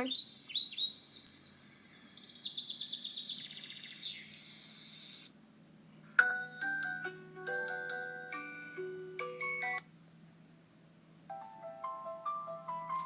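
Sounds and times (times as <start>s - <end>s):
bird-like chirping ringtone: 6.2s - 9.8s
chiming ringtone melody: 6.2s - 9.9s, 11.3s - 13.0s.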